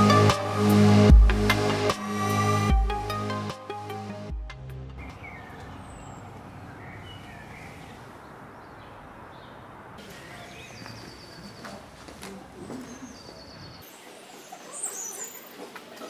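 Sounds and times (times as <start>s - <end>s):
electronic music: 0.0s - 5.0s
outdoor background noise: 0.0s - 16.0s
small birds chirping: 5.0s - 16.0s.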